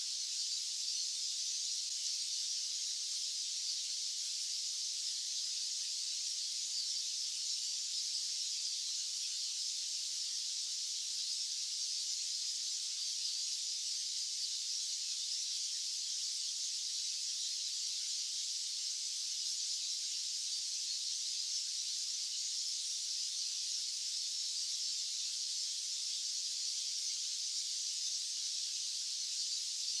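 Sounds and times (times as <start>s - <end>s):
high-pitched white noise hiss: 0.0s - 6.8s.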